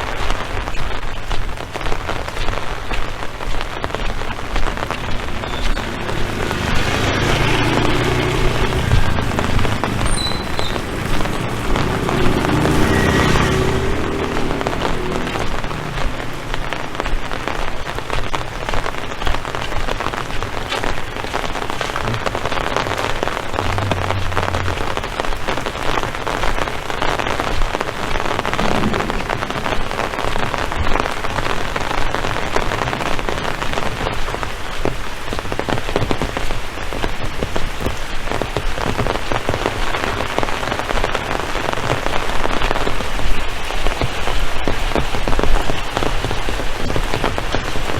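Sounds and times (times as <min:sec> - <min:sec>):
heavy rain falling: 0:00.0 - 0:47.9
low hum: 0:22.1 - 0:26.2, 0:28.4 - 0:31.4.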